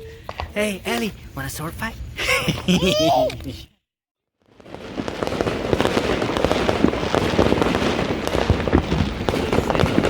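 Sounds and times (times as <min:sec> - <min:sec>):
firecrackers crackling: 0:04.4 - 0:10.0
loud firework cracks: 0:04.4 - 0:10.0.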